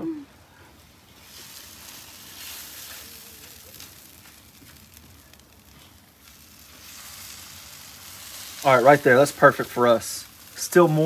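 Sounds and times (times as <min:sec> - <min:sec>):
eggs sizzling on griddle: 0:00.4 - 0:11.0.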